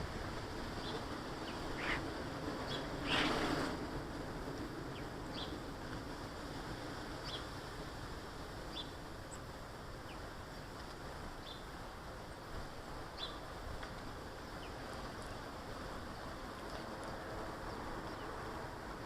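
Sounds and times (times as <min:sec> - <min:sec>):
background hiss and rumble: 0:00.0 - 0:19.0
birds chirping: 0:00.7 - 0:03.4, 0:04.9 - 0:05.6, 0:17.1 - 0:18.6.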